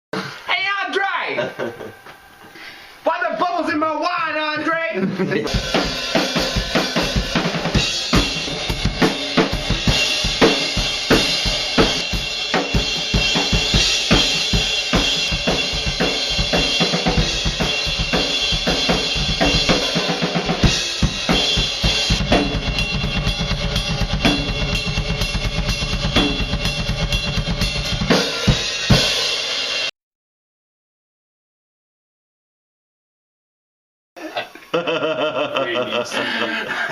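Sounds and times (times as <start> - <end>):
fast bass drum kicks: 5.5 - 29.2
rock drum kit played hard: 5.5 - 29.9.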